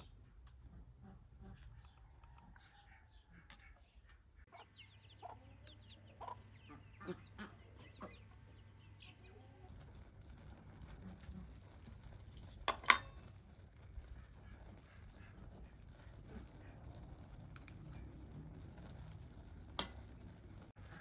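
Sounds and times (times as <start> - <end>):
chickens clucking: 0.1 - 11.8, 14.0 - 18.6.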